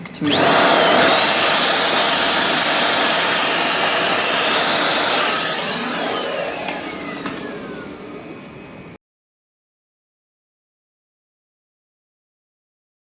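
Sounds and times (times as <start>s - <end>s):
vacuum cleaner running: 0.0s - 9.0s
motor winding down whine: 0.2s - 8.4s.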